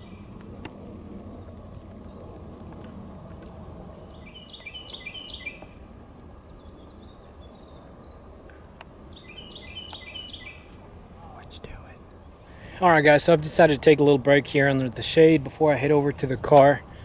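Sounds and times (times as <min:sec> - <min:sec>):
low outdoor background noise: 0:00.0 - 0:17.0
songbird singing falling notes: 0:01.3 - 0:10.8.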